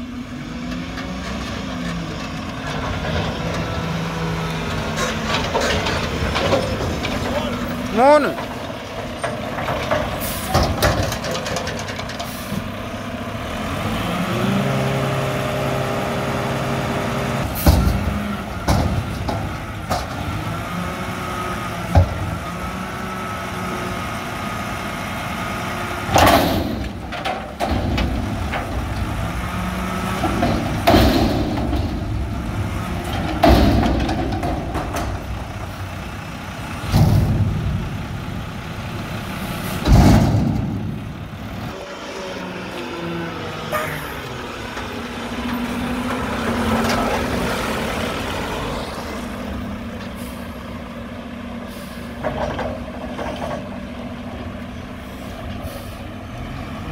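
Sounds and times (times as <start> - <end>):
diesel engine revving: 0.0 - 56.9.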